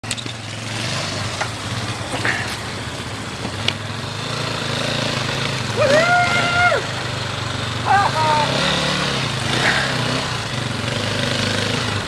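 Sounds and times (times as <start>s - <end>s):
dirt bike engine idling: 0.0s - 12.0s.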